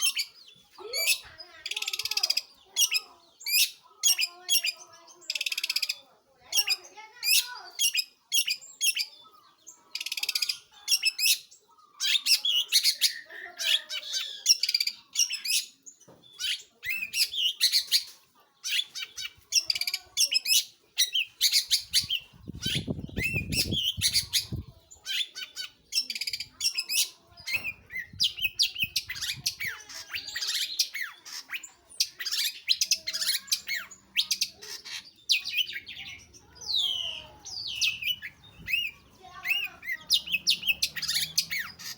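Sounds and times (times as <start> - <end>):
shrike singing chatter: 0.0 - 41.9.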